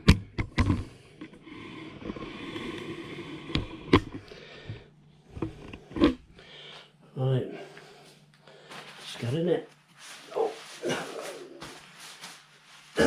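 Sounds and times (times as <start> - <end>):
tent fabric rustling: 8.7 - 13.0.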